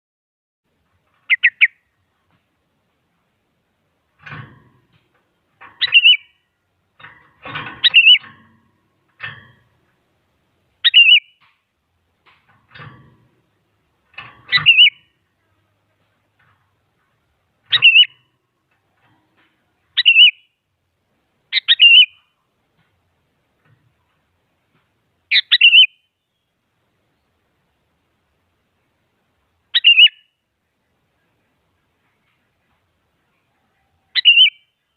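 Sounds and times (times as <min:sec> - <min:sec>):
faint rough bird sounds: 0:00.7 - 0:34.9
bulbul chattering calls: 0:01.2 - 0:01.8, 0:05.8 - 0:06.4, 0:07.8 - 0:08.3, 0:10.8 - 0:11.4, 0:14.4 - 0:15.1, 0:17.7 - 0:18.3, 0:19.9 - 0:20.5, 0:21.5 - 0:22.3, 0:25.3 - 0:26.0, 0:29.7 - 0:30.3, 0:34.1 - 0:34.7.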